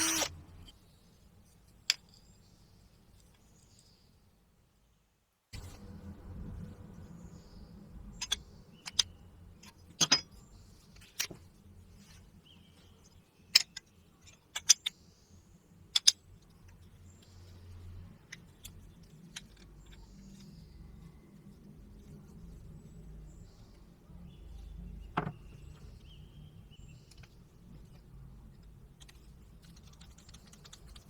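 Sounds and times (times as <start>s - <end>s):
small parts and tools clicking: 0.0s - 0.8s, 8.2s - 11.4s, 13.5s - 15.0s, 15.8s - 20.8s, 26.9s - 31.0s.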